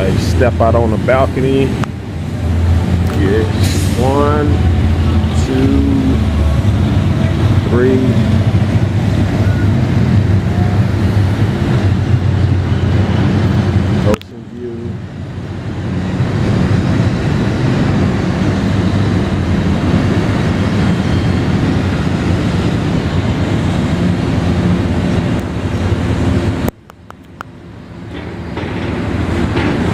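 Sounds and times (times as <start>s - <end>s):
city traffic: 0.0s - 29.9s.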